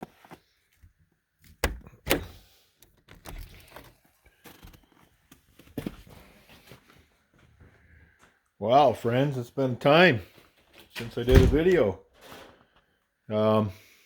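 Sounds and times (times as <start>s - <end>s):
knocks and thuds: 11.3s - 11.8s.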